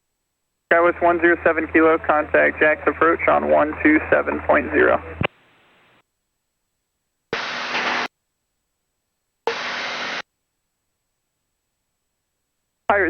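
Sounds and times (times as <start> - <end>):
radio squelch hiss bursts: 7.4 - 8.1, 9.5 - 10.2.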